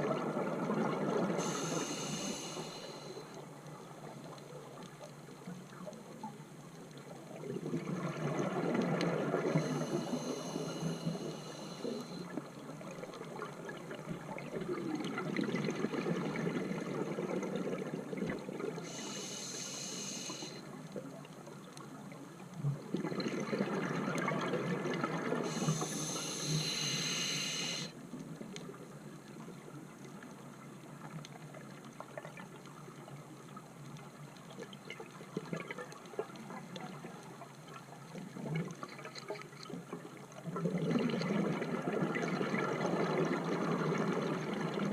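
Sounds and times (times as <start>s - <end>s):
underwater background: 0.0s - 44.9s
regulator hiss: 1.4s - 3.4s, 9.5s - 12.3s, 18.8s - 20.6s, 25.4s - 28.0s.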